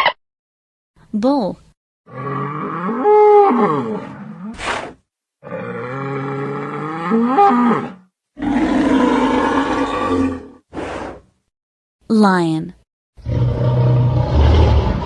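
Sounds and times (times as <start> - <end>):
bull bellowing: 5.4 - 10.6.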